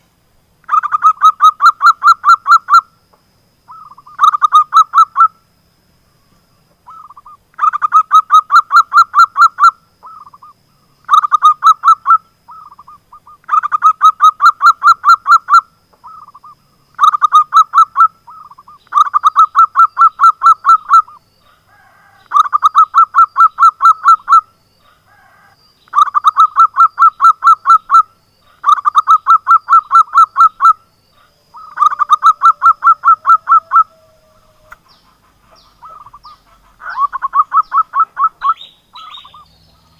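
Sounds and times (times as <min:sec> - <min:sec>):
dove cooing: 0:11.1 - 0:39.9.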